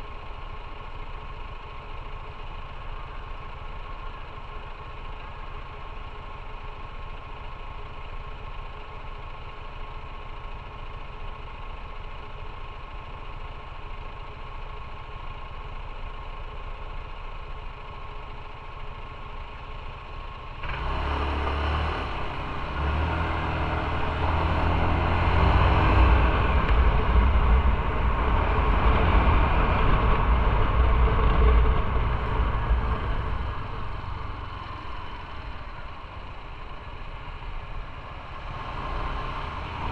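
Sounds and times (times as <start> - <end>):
motorcycle engine accelerating: 19.6 - 39.9.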